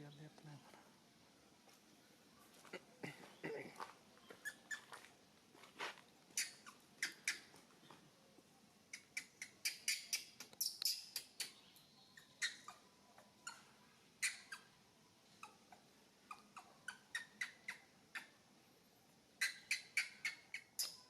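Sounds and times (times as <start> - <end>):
monkey squeaking and chirping: 4.3 - 5.0, 6.3 - 7.6, 8.9 - 11.6, 12.2 - 18.3, 19.4 - 21.0.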